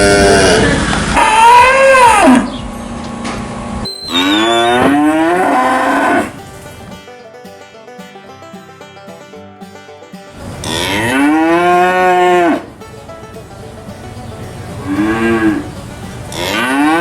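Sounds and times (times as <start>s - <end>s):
cattle mooing: 0.0s - 2.5s, 4.1s - 6.4s, 10.6s - 12.7s, 14.8s - 17.0s.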